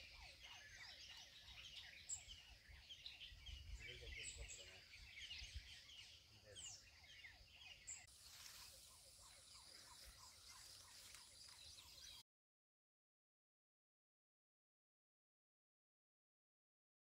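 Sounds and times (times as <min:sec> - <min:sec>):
birds chirping and twittering: 0:00.0 - 0:12.2.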